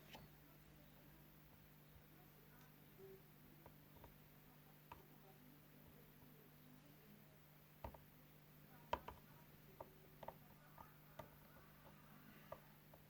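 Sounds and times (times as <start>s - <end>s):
low steady hum: 0.0s - 13.0s
small light clicks and taps: 3.6s - 4.2s, 4.9s - 5.1s, 8.9s - 13.0s.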